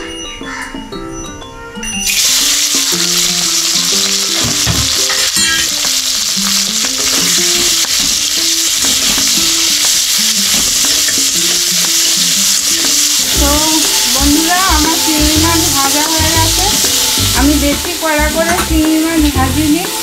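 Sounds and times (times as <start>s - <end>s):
background music: 0.0s - 20.0s
prawns sizzling in hot oil: 2.0s - 20.0s
metal spatula stirring: 5.0s - 14.6s.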